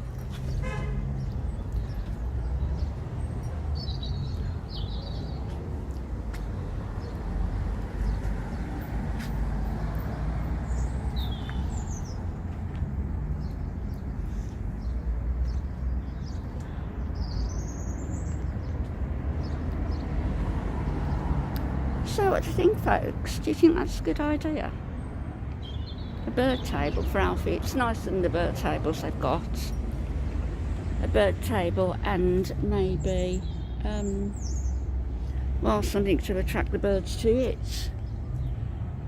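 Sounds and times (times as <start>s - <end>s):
small birds chirping: 1.2s - 7.3s, 10.0s - 20.1s, 25.5s - 30.0s, 30.8s - 36.4s.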